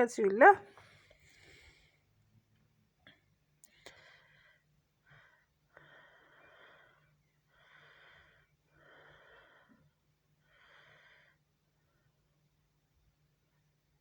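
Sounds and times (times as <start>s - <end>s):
soft hissy breathing: 0.7s - 2.2s, 3.6s - 12.1s.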